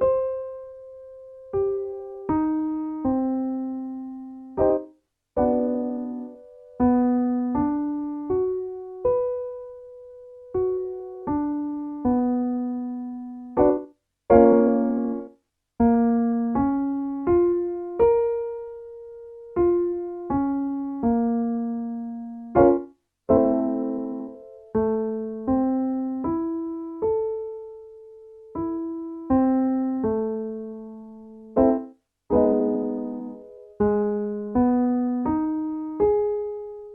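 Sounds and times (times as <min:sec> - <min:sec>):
piano minor arpeggio: 0:00.0 - 0:36.9
piano chord strikes: 0:22.5 - 0:25.9, 0:29.4 - 0:35.4.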